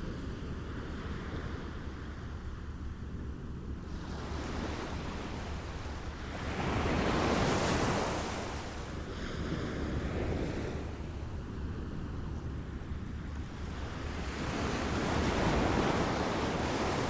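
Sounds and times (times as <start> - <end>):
small waves lapping on shore: 3.8 - 12.0, 13.1 - 17.0.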